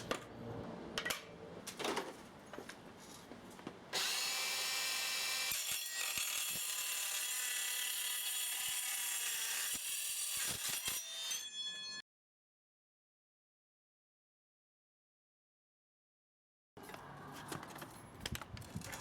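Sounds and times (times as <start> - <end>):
circular saw cutting steel: 4.0 - 12.0.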